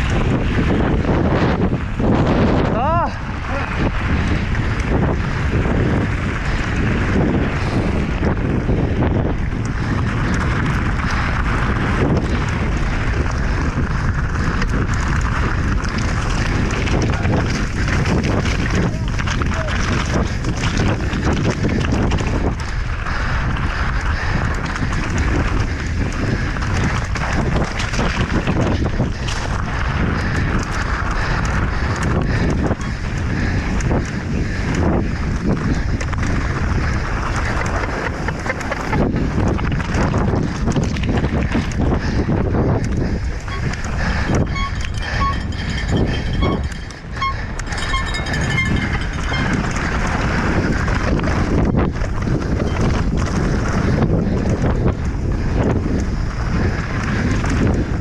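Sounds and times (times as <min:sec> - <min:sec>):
bike rattling and knocking: 0:00.0 - 0:58.0
wind buffeting microphone: 0:00.0 - 0:58.0
high squeaks: 0:43.5 - 0:49.7.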